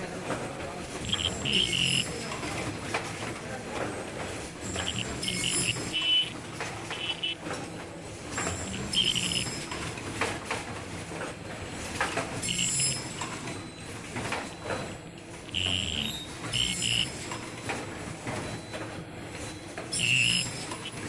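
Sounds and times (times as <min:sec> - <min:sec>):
rhythmic machine clatter: 0:00.0 - 0:21.0
short high-pitched tones: 0:00.0 - 0:21.0.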